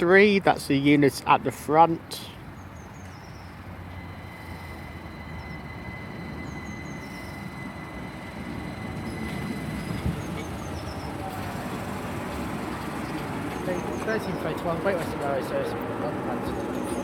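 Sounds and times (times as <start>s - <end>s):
electric train arriving: 0.8s - 17.0s
high squeal: 3.0s - 14.8s.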